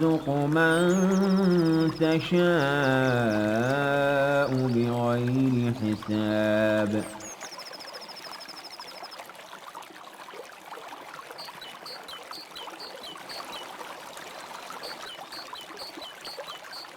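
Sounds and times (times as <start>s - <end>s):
bird trilling: 0.0s - 5.0s, 6.8s - 8.8s, 11.4s - 13.7s, 14.5s - 16.9s
bird chirping: 0.0s - 9.1s, 11.4s - 13.7s, 14.3s - 16.9s
stream water trickling: 0.0s - 16.9s.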